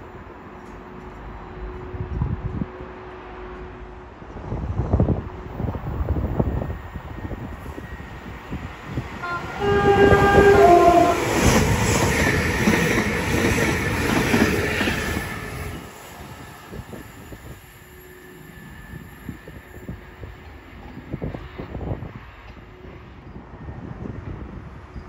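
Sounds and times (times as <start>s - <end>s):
train rushing and rumbling past: 0.0s - 25.0s
two-note train horn: 9.2s - 11.4s.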